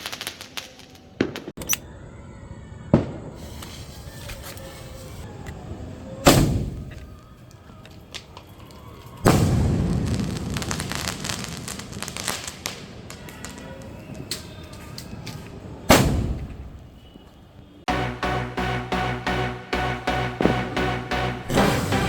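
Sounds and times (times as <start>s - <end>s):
dense firework crackling: 0.0s - 1.6s, 2.9s - 5.4s, 6.1s - 17.2s
firework mortar launch bang: 2.9s - 5.3s, 6.2s - 7.3s, 9.2s - 14.2s, 15.9s - 17.0s
firework shell bursting boom: 6.3s - 7.1s.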